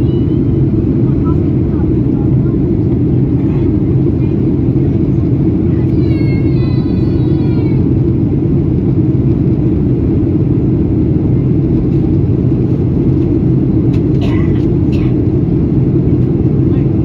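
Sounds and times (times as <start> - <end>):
jet engine cabin roar: 0.0 - 17.0.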